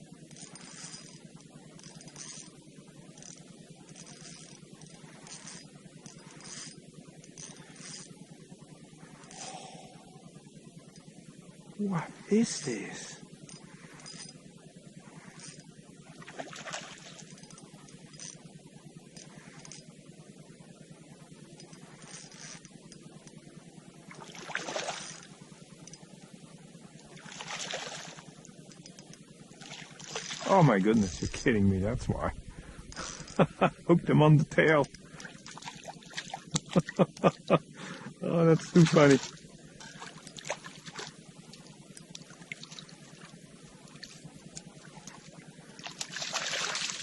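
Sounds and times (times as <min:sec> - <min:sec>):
faint low hum: 0:00.0 - 0:47.0
water splashing and trickling: 0:16.2 - 0:17.3, 0:24.1 - 0:25.3, 0:27.1 - 0:28.4, 0:29.6 - 0:31.3, 0:34.5 - 0:36.9, 0:38.6 - 0:41.2, 0:44.8 - 0:47.0
water splashing: 0:16.3 - 0:17.2, 0:24.1 - 0:25.1, 0:27.2 - 0:28.2, 0:29.6 - 0:31.6, 0:45.8 - 0:47.0.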